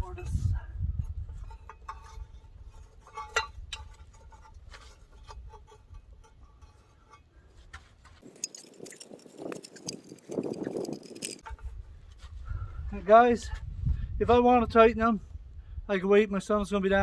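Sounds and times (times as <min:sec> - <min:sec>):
light metallic clinks and taps: 0:08.2 - 0:11.6.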